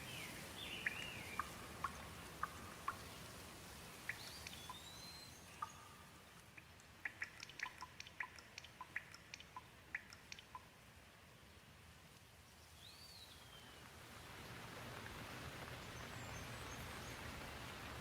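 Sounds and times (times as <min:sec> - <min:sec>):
faint rain hiss: 0:00.0 - 0:18.0
water drops plinking: 0:00.6 - 0:03.3, 0:04.0 - 0:10.7.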